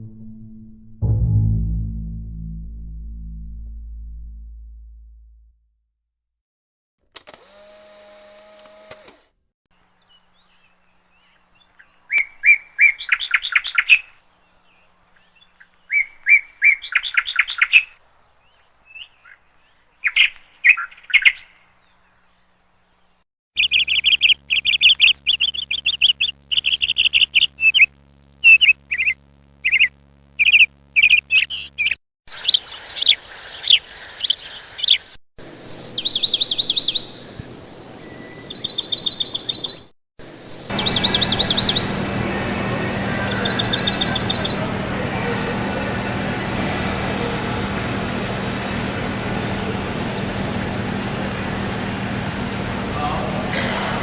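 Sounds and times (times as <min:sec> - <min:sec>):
songbird trilled songs: 0:23.0 - 0:35.0, 0:35.6 - 0:44.8
rapid bird chirps: 0:23.6 - 0:44.8.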